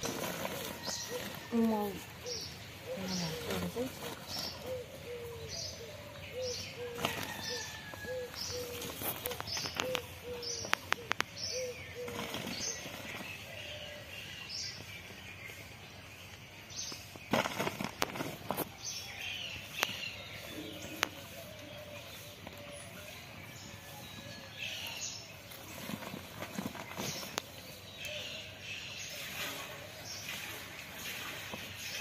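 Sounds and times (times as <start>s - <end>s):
bird low hoots: 4.4s - 12.2s.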